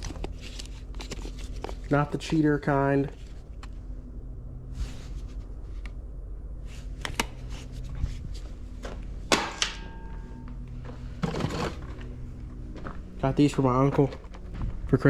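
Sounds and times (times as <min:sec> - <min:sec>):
sharp metallic clack with ringing: 0:09.3 - 0:10.5.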